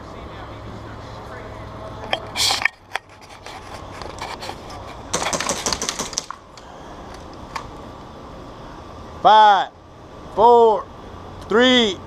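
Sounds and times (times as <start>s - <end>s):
airsoft guns firing: 5.1s - 6.4s.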